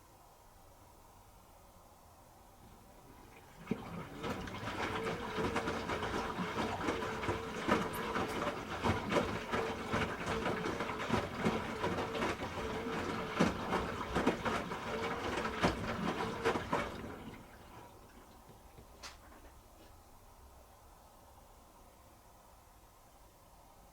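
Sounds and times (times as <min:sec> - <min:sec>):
washing machine hum: 0:01.6 - 0:23.9
water and laundry sloshing: 0:02.5 - 0:20.4.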